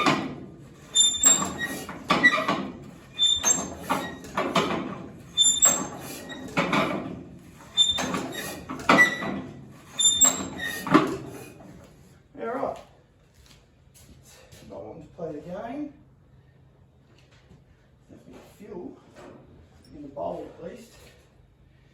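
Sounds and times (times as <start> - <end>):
tractor engine cranking: 0.0 - 11.5.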